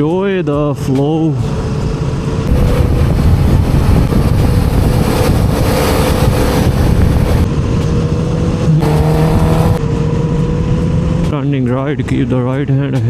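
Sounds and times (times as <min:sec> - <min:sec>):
wind rush on microphone: 0:01.6 - 0:11.2
motorcycle engine running: 0:02.5 - 0:11.4.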